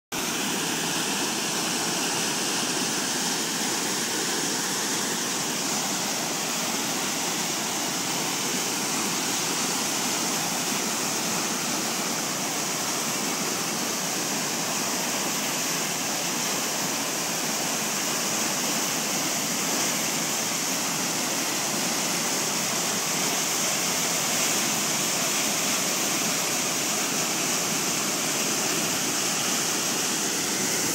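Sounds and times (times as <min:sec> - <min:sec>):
flooded creek rushing: 0:00.1 - 0:30.9.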